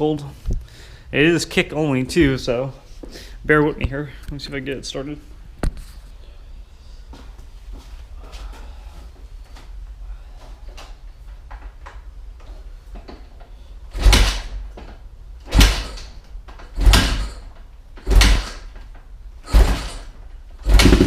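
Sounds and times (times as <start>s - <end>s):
motorcycle engine kick-starting: 15.5s - 18.8s, 19.4s - 21.0s.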